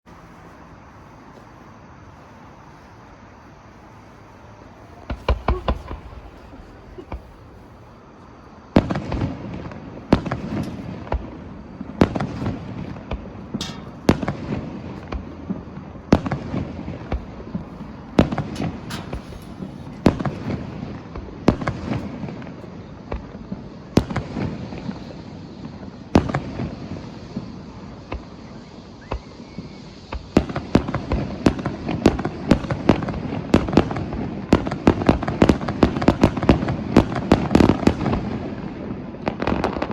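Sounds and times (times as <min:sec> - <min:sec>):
firework shells bursting: 0:05.0 - 0:22.6.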